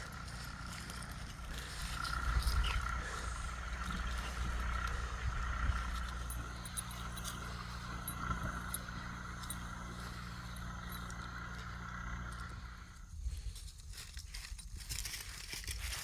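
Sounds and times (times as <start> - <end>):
boat engine running: 0.0 - 13.1.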